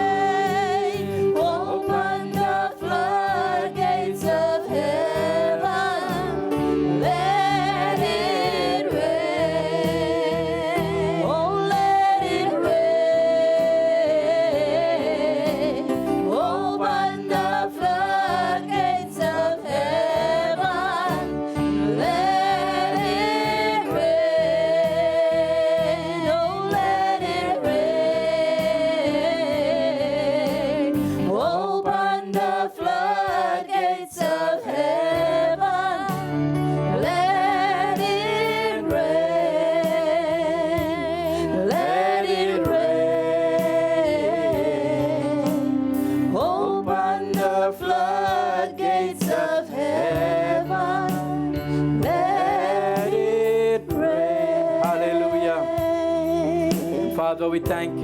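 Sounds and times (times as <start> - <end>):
sustained keyboard chords: 0.0 - 58.0
person singing slow melody: 34.2 - 58.0.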